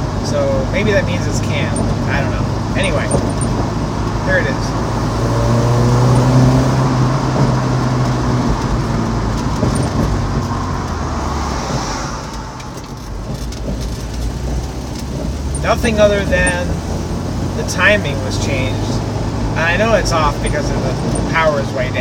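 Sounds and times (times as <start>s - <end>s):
car engine under throttle: 0.0s - 22.0s
engine intake rushing: 0.0s - 22.0s.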